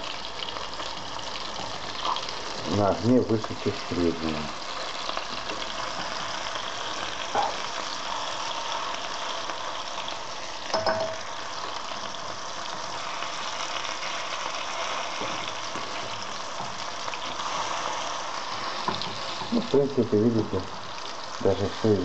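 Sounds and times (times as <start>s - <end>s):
fish sizzling in a skillet: 0.0s - 22.0s
fork knocking against pan: 10.7s - 11.2s.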